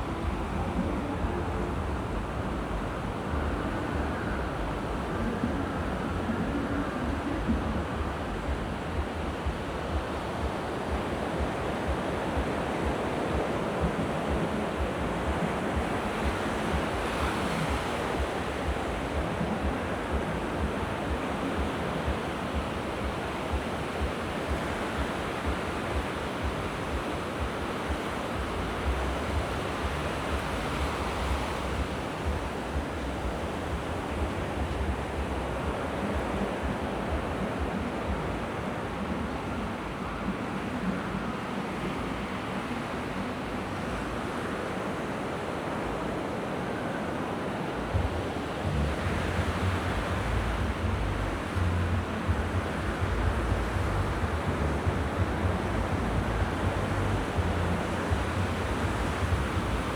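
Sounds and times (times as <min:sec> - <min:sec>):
sea waves washing onto shore: 0:00.0 - 0:59.9
wind buffeting microphone: 0:00.0 - 0:59.9.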